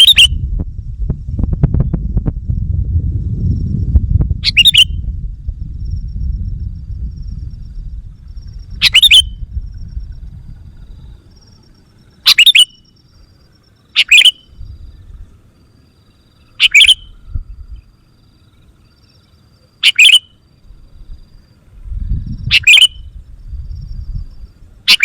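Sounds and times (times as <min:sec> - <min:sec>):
bird chattering calls: 0:00.0 - 0:00.4, 0:04.4 - 0:05.0, 0:08.8 - 0:09.4, 0:12.2 - 0:12.9, 0:13.9 - 0:14.6, 0:16.4 - 0:17.2, 0:19.8 - 0:20.4, 0:22.4 - 0:23.1
low rumble: 0:00.3 - 0:12.2, 0:17.1 - 0:17.9, 0:20.7 - 0:24.8.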